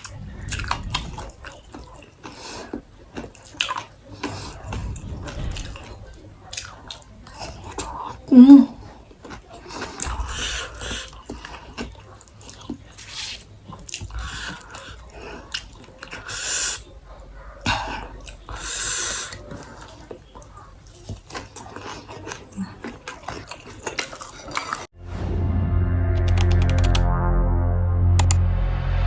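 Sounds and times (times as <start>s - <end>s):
person chewing food: 0.0s - 24.9s
music: 25.0s - 29.0s.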